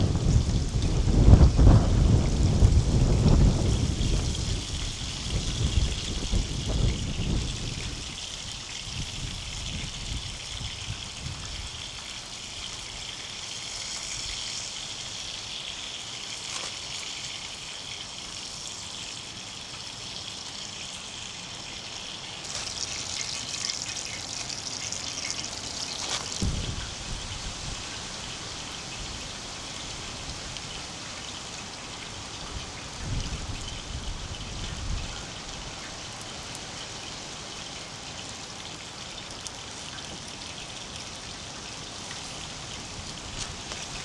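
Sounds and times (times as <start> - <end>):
low rumble of thunder: 0.0 - 8.2, 26.4 - 27.8
steady rain: 0.0 - 44.0.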